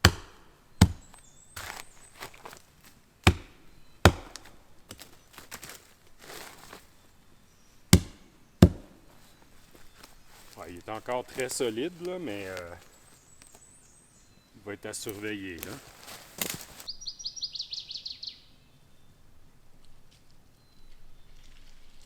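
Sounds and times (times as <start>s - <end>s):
woody knocks on tree trunk: 0.0s - 2.6s, 3.3s - 6.8s, 8.0s - 9.0s.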